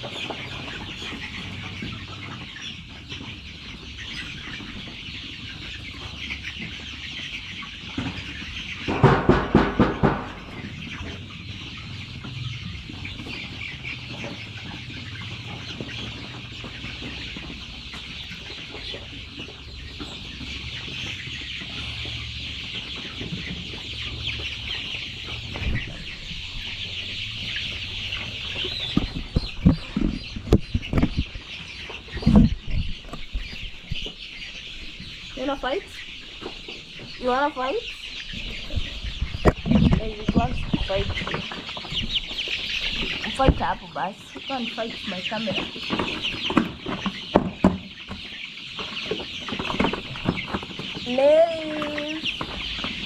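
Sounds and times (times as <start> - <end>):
chickens clucking: 0.0 - 53.0
sharp knocks and thumps: 8.0 - 11.2.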